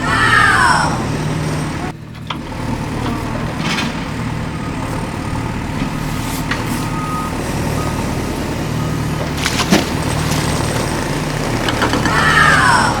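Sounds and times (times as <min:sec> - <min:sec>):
heavy vehicle engine running: 0:00.0 - 0:13.0
reversing beeping tone: 0:02.6 - 0:09.2.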